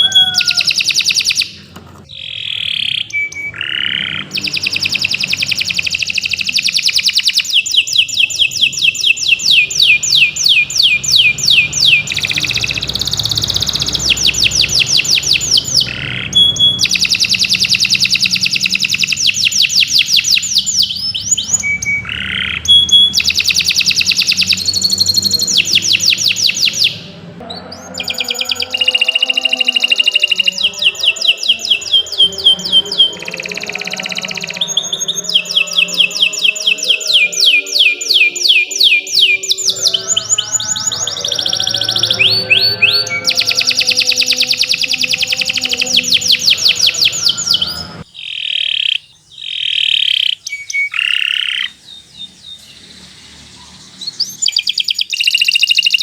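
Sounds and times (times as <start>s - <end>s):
canary singing rapid trills: 0.0s - 56.0s.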